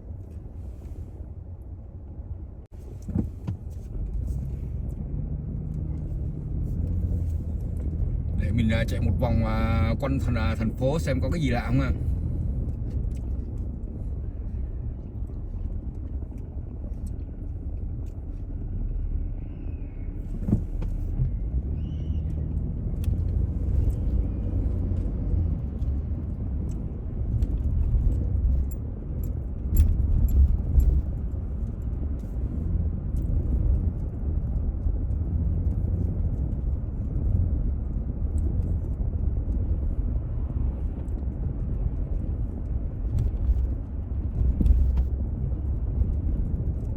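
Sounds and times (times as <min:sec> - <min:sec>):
road and engine rumble: 0:00.0 - 0:46.9
light clicks and rattles: 0:22.3 - 0:46.9.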